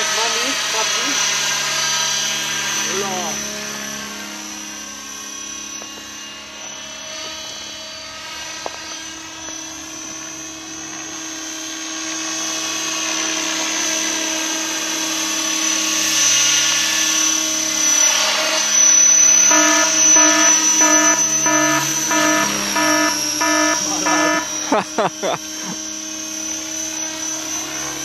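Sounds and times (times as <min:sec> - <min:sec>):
rc helicopter motor whine: 0:00.0 - 0:28.0
rotor blade noise: 0:12.3 - 0:28.0.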